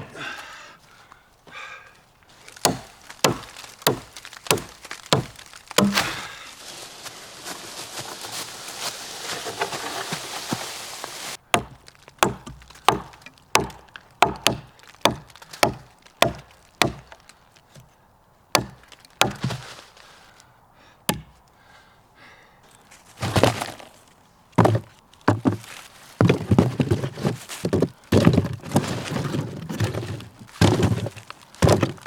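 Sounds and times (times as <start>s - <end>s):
axe chopping wood: 2.5s - 6.4s, 11.5s - 17.9s, 18.5s - 19.6s, 21.1s - 21.4s, 24.6s - 25.6s, 26.2s - 32.0s.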